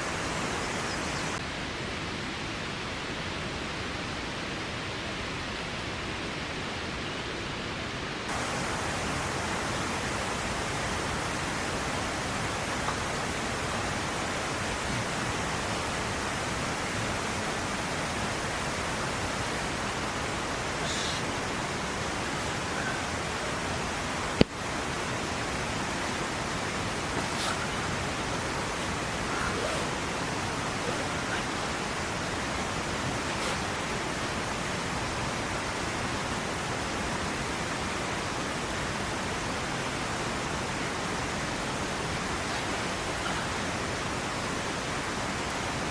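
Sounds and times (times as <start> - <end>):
water rushing: 0.0 - 45.9
brief higher hiss: 20.8 - 21.2, 27.2 - 27.8, 33.3 - 33.6.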